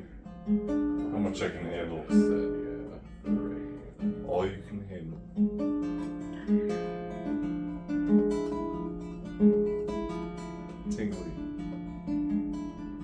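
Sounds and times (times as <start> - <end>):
acoustic guitar picking: 0.0 - 13.0.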